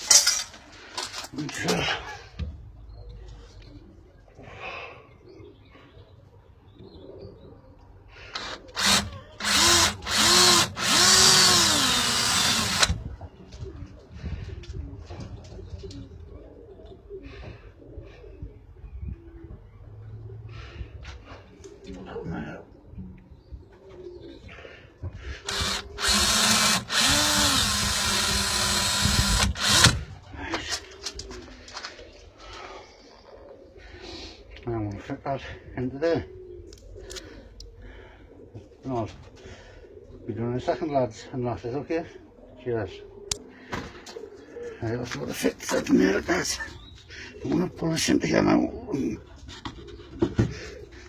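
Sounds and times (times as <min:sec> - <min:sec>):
power drill whining: 0:08.4 - 0:13.0, 0:25.5 - 0:30.1.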